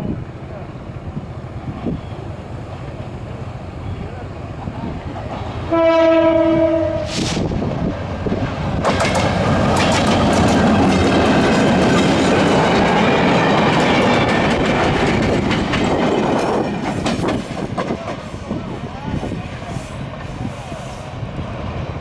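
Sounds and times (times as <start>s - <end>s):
locomotive horn: 5.7s - 7.3s
brief hiss: 7.0s - 7.6s
train wheels clattering on rails: 7.1s - 20.5s.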